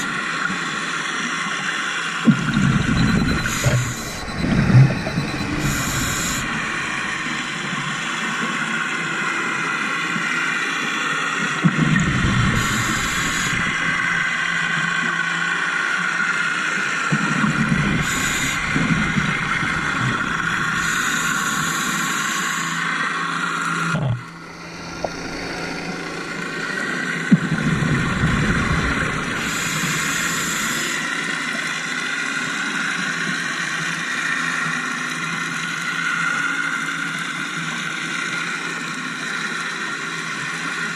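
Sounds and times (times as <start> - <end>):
underwater drone: 0.0 - 40.9
exhaled bubbles rumbling: 2.3 - 8.2, 11.7 - 15.2, 17.1 - 21.9, 24.1 - 30.9
regulator inhalation hiss: 12.5 - 14.2, 17.9 - 22.8.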